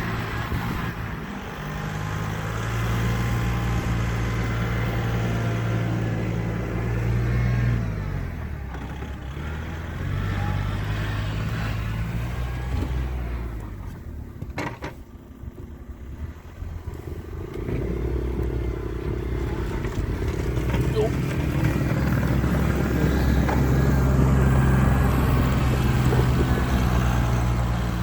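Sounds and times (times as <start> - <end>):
engine running: 0.0 - 28.0.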